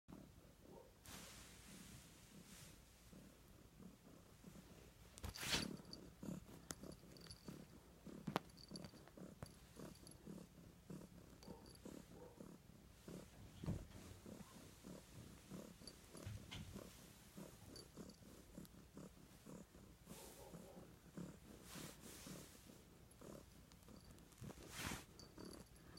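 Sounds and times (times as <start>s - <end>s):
cat purring: 0.1s - 25.9s
brief rustle: 5.2s - 5.8s.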